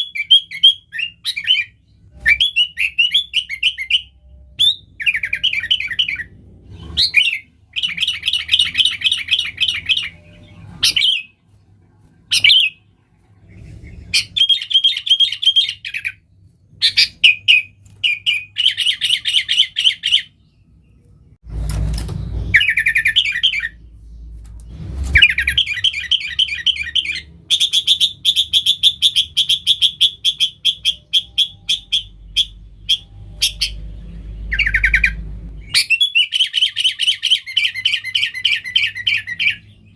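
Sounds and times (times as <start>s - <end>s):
low rumble: 32.1s - 35.8s.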